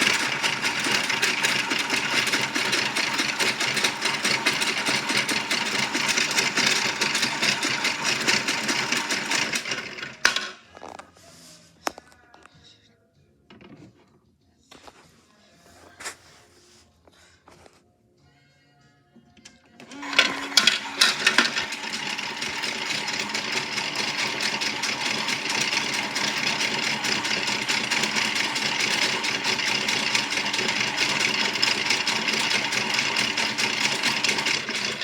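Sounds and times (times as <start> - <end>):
toy motor rattling whir: 0.0 - 10.4, 19.9 - 35.0.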